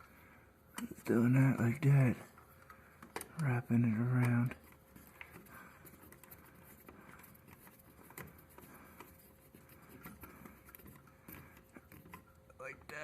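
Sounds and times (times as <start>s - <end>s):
rustling of hands: 4.3s - 12.5s.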